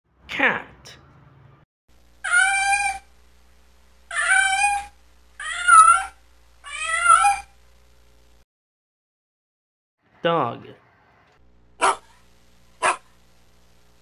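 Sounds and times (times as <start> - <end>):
cat meowing: 2.2 - 3.0, 4.1 - 7.5.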